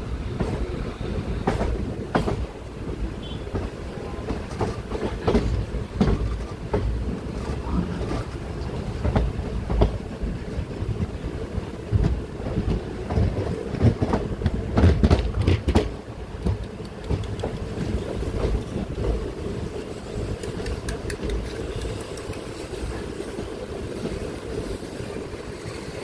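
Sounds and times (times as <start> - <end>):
train wheels running on rails: 0.0 - 26.0
train wheel clanks on track: 3.5 - 10.0, 11.9 - 19.1, 20.0 - 23.3.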